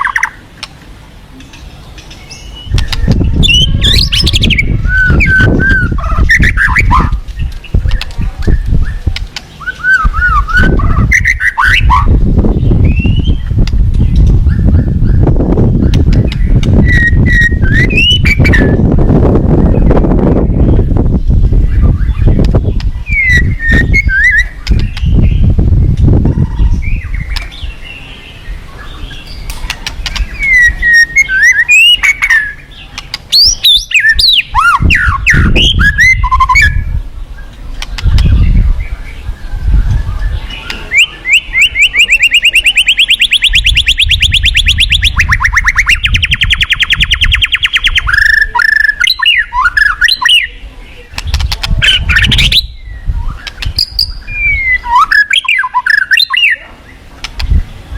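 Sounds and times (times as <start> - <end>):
bird singing whistles and trills: 0.0 - 0.4, 2.0 - 57.6
low rumbling noise: 0.0 - 31.4.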